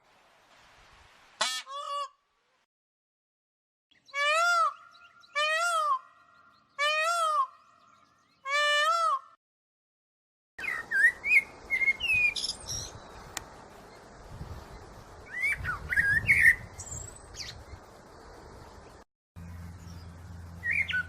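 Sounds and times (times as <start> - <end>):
peafowl honking calls: 1.4 - 2.1, 4.1 - 7.7.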